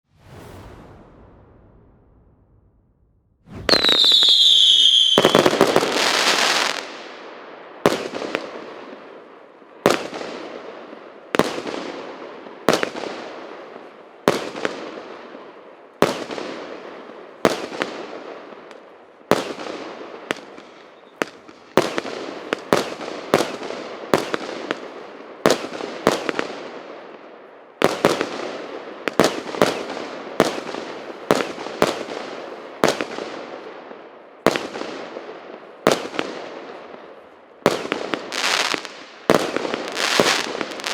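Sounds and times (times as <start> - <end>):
fireworks bangs with crackle: 3.4 - 7.2, 19.3 - 27.1, 27.8 - 33.6, 34.4 - 36.8, 37.6 - 40.9.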